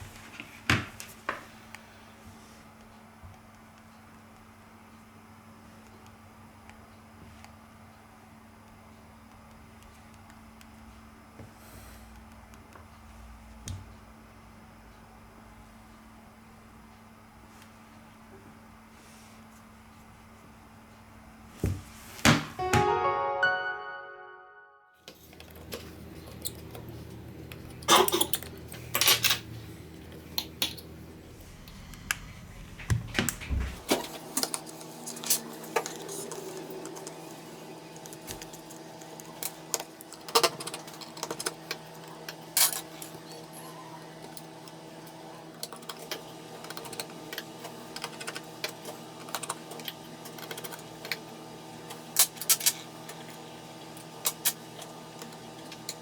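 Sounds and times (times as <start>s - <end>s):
steady electrical hum: 25.1s - 56.0s.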